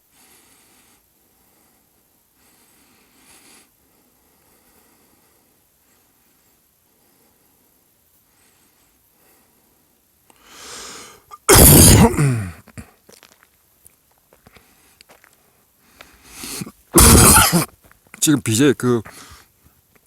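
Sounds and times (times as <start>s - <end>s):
person sneezing: 11.3s - 12.6s, 16.4s - 17.7s.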